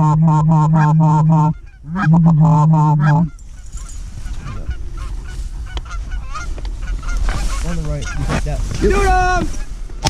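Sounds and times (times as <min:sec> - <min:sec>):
distant flock of geese honking: 0:00.0 - 0:08.5
loud pulsing goose honks: 0:00.0 - 0:09.8.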